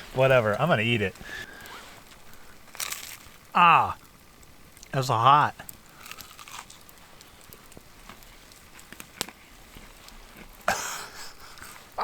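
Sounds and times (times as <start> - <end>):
rustling crunch: 0.0 - 3.4, 6.0 - 6.8
campfire crackling and popping: 0.0 - 12.0.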